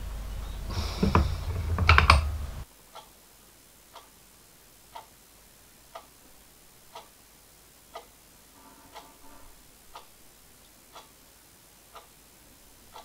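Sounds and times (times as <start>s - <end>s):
low hum: 0.0s - 2.6s
clock ticking: 0.9s - 3.2s, 3.9s - 4.2s, 4.8s - 13.0s.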